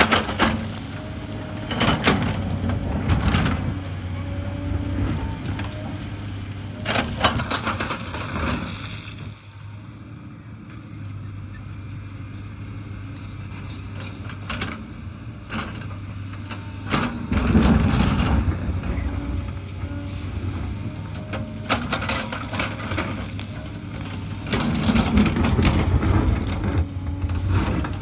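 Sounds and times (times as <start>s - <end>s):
excavator diesel engine running: 0.0s - 28.0s
scraping and clattering: 21.3s - 28.0s.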